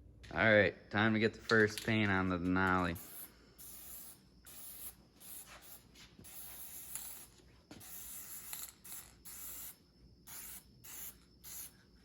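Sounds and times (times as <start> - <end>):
spray paint hissing in bursts: 2.9 - 12.0.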